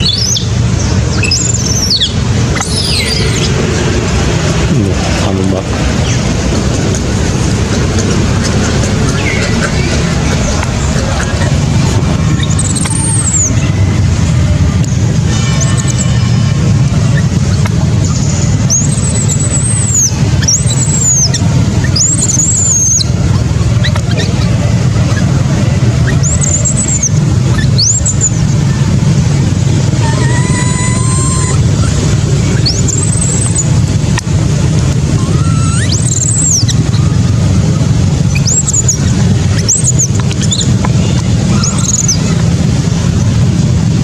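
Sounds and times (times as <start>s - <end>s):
low rumble: 0.0s - 44.0s
baby monkey crying: 1.2s - 3.9s, 4.9s - 13.6s, 15.4s - 28.8s, 29.4s - 42.6s.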